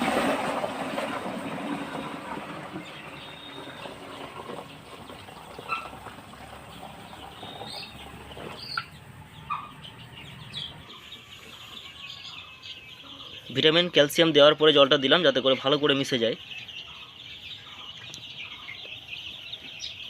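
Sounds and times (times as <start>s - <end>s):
water pouring into container: 0.0s - 8.0s
chicks peeping: 0.0s - 20.0s.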